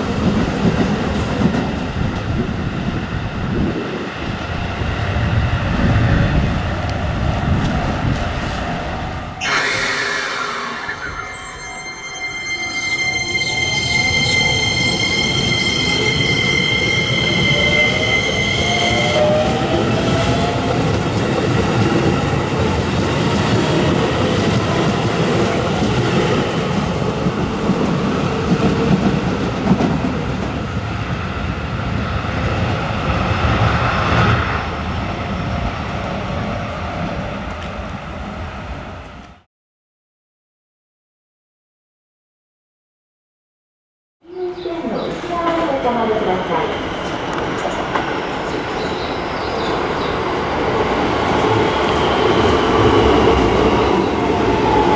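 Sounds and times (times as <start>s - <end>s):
train inverter whine: 0.0s - 28.0s
rail and wheel noise: 0.0s - 39.5s, 44.3s - 54.9s.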